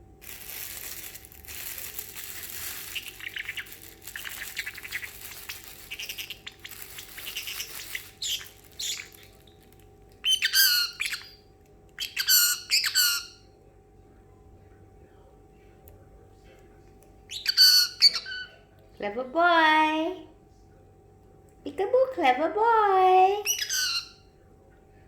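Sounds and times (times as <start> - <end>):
parrot squawking calls: 2.3 - 11.4, 12.0 - 13.4, 17.3 - 18.6, 23.4 - 24.2
parrot hissing and chattering: 2.4 - 9.5.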